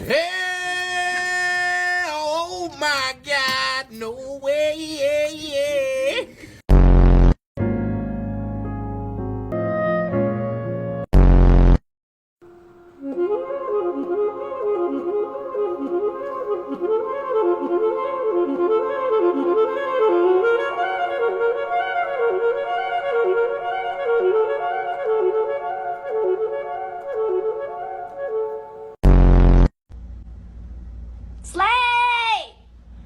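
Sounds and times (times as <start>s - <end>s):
solo wind instrument melody: 9.5s - 11.0s, 12.4s - 29.0s.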